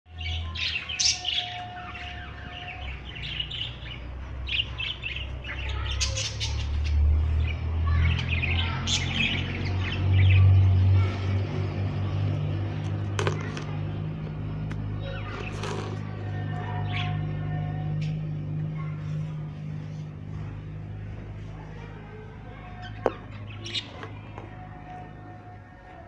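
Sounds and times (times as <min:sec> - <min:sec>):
steady low hum: 0:09.8 - 0:26.0.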